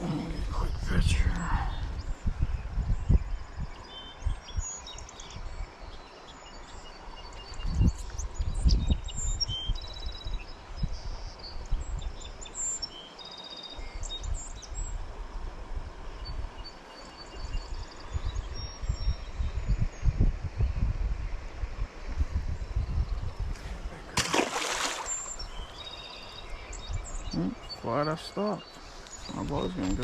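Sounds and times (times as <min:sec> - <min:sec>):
small birds chirping: 0:00.0 - 0:15.0, 0:16.2 - 0:20.3, 0:22.6 - 0:30.0
creek water rushing: 0:23.6 - 0:29.7.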